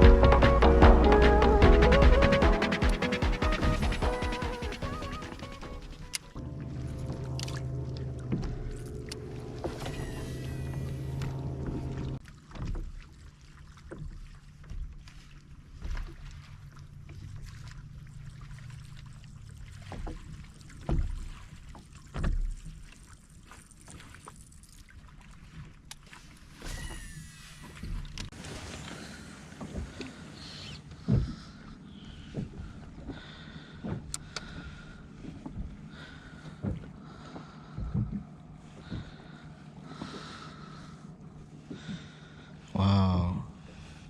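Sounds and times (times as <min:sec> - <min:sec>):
steady low hum: 0:00.0 - 0:12.2, 0:28.4 - 0:44.0
steady low rumble: 0:00.0 - 0:12.2
water knocking against hull: 0:00.0 - 0:23.2, 0:30.8 - 0:42.4.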